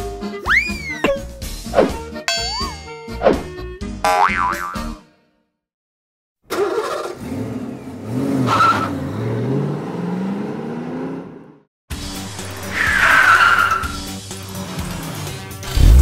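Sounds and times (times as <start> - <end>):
cartoon sports car engine revving: 6.5 - 11.6, 12.4 - 16.0.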